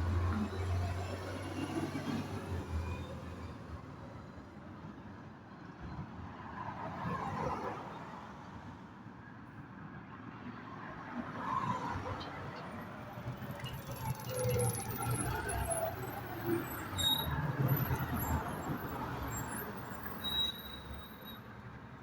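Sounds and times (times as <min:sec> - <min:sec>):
faint vehicle noise: 0:00.0 - 0:03.6.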